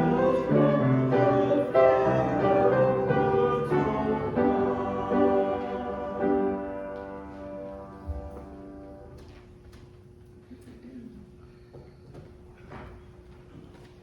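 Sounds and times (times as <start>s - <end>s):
congregation singing a hymn: 0.0s - 9.1s.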